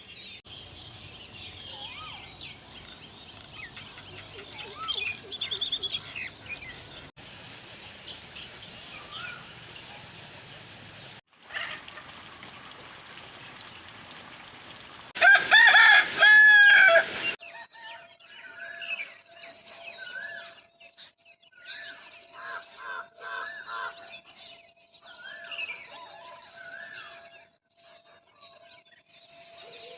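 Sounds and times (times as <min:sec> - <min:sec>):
small birds chirping: 0:00.0 - 0:11.2
rooster crowing: 0:15.2 - 0:18.0.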